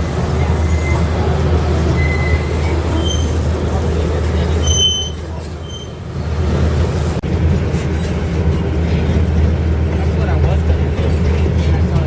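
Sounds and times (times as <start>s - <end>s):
miniature train rumbling on track: 0.0s - 12.0s
high squeaks of train wheels: 0.3s - 1.2s, 1.9s - 3.5s, 4.5s - 6.1s.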